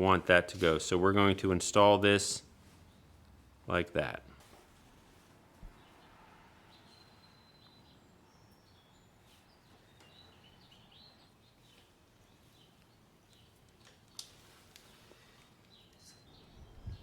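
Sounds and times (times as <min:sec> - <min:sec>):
faint bird chirps: 0:05.7 - 0:14.0, 0:14.9 - 0:17.0.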